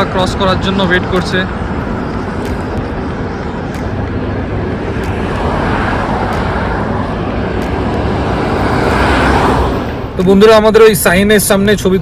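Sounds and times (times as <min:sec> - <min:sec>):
road traffic: 0:00.0 - 0:12.0
vehicle approaching: 0:00.0 - 0:12.0.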